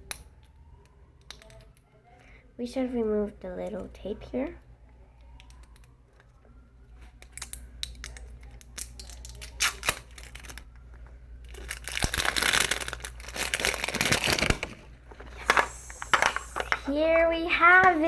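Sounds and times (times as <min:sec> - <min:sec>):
small clicks and crackles: 0:05.2 - 0:14.8
plastic wrapping crinkling and tearing: 0:07.3 - 0:16.9.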